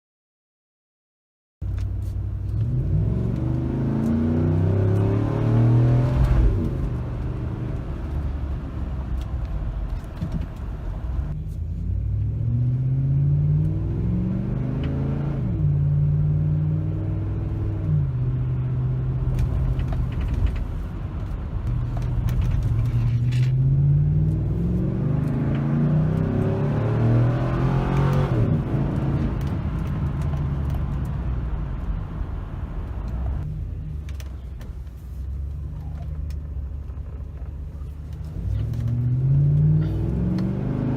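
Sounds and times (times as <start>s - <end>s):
car engine revving: 2.4s - 33.5s, 36.2s - 40.9s.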